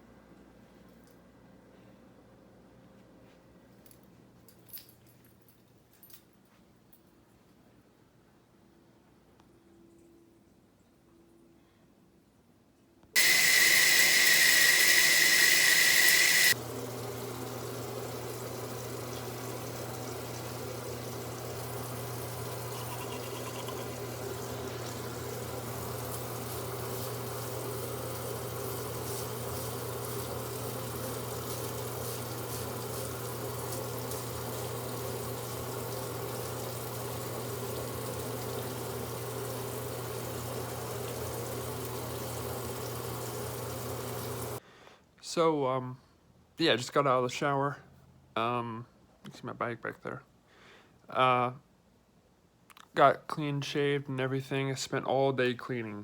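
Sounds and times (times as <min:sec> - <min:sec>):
water running: 0:13.2 - 0:44.6.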